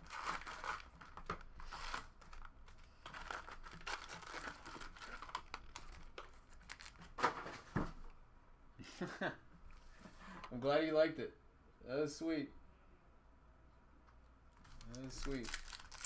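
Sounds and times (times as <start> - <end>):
foil wrappers crinkling: 0.0 - 7.2, 14.6 - 16.0.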